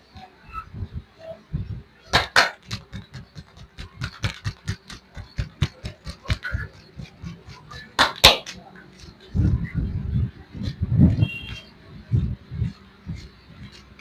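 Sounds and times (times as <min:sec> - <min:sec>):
hands slapping bare legs: 0:02.2 - 0:06.7, 0:07.4 - 0:08.6.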